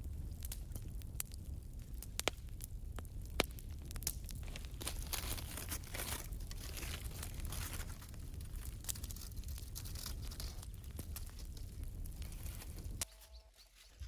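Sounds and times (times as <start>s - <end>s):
aluminium foil crinkling: 4.3s - 14.0s.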